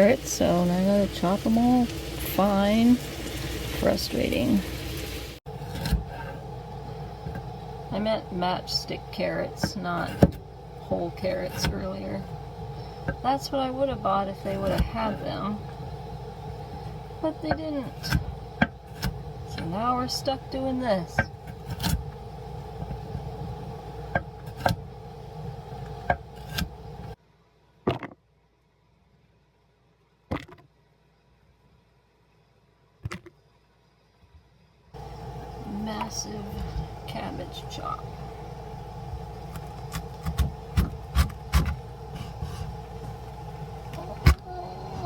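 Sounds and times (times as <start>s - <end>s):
steady low hum: 0.0s - 27.2s, 35.0s - 45.0s
knife chopping on cutting board: 39.5s - 42.8s.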